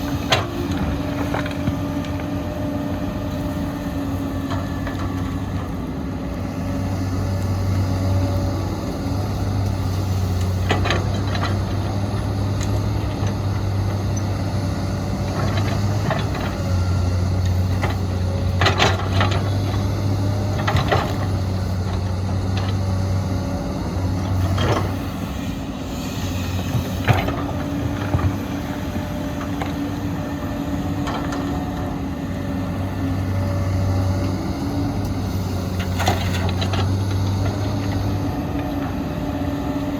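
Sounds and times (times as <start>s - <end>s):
heavy diesel engines running: 0.0s - 39.9s
machinery clanks and knocks: 17.4s - 22.9s.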